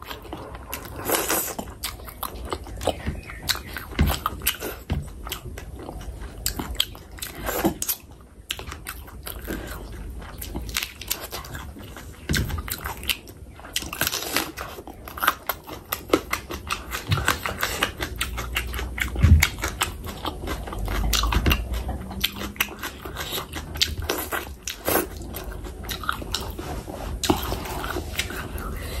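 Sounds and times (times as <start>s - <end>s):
wet chewing and lip-smacking: 0.0s - 29.0s.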